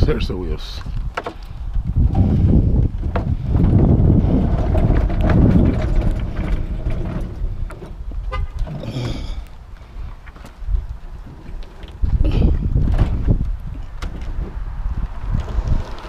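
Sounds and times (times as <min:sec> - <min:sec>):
wind rumble on microphone: 0:00.0 - 0:16.0
scrap item knocking and rattling: 0:03.0 - 0:08.0.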